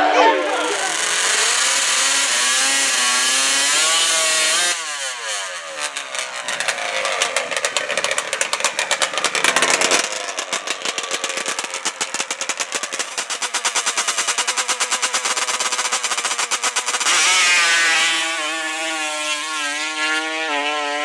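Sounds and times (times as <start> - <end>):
high-revving atv engine: 0.0 - 21.0
crackling rattle of sharp pops: 5.9 - 17.5.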